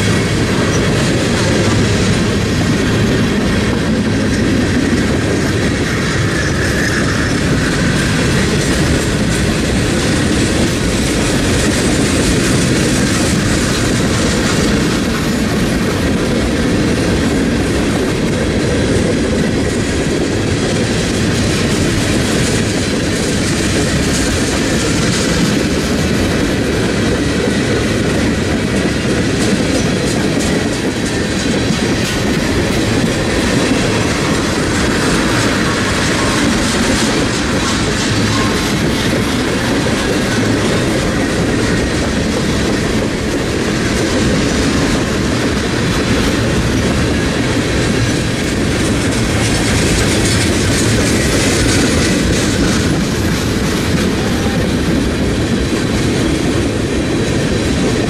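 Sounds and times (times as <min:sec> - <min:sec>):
train wheels rumbling on rails: 0:00.0 - 0:58.0
wheels clacking over rail joints: 0:00.0 - 0:58.0.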